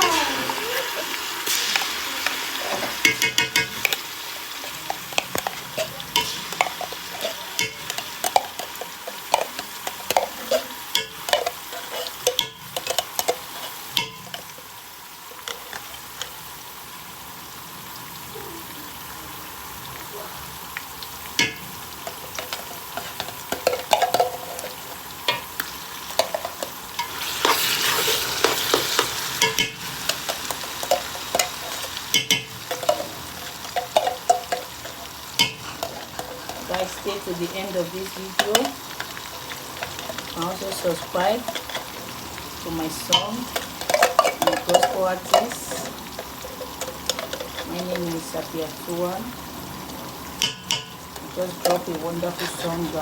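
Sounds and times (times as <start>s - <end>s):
stew sizzling in oil: 0.0s - 53.0s
spoon scraping and knocking pot: 1.6s - 14.6s, 21.4s - 48.4s, 50.4s - 53.0s.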